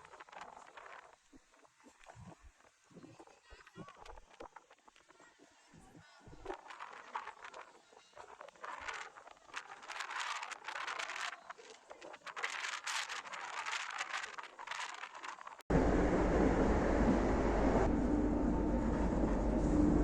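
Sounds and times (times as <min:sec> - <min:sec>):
crinkling and rustling: 0:00.0 - 0:05.2, 0:06.3 - 0:15.6.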